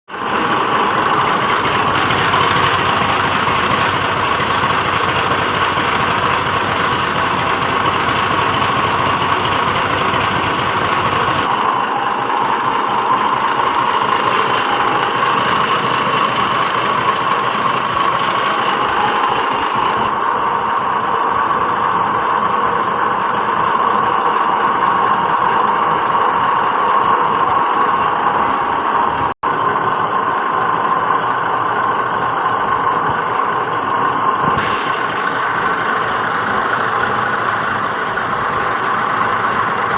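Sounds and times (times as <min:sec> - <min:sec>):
tractor diesel engine rumble: 0:00.1 - 0:39.9.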